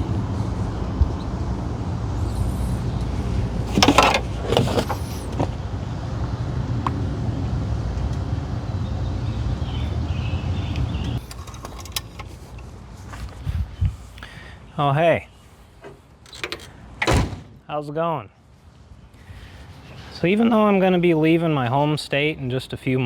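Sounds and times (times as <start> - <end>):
vehicle engine rumbling: 0.0 - 14.4.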